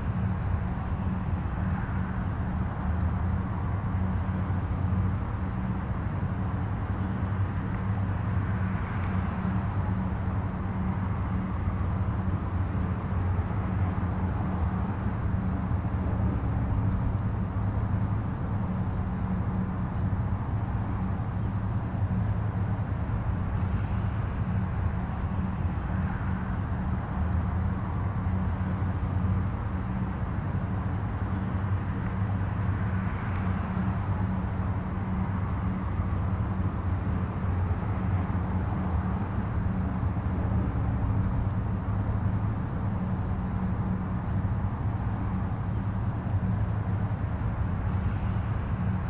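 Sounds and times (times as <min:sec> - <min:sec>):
distant highway traffic rumble: 0:00.0 - 0:49.0.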